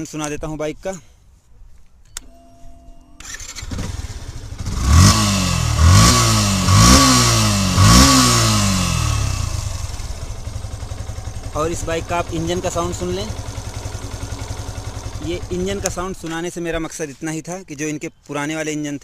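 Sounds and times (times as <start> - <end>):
motorcycle engine revving: 3.2 - 16.4
motorcycle engine idling: 3.4 - 17.0
starter click and hum: 9.2 - 16.6.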